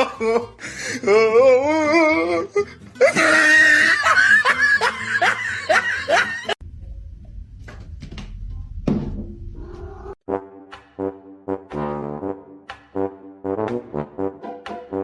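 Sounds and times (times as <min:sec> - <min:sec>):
person laughing hard: 0:00.0 - 0:01.8, 0:02.4 - 0:06.6.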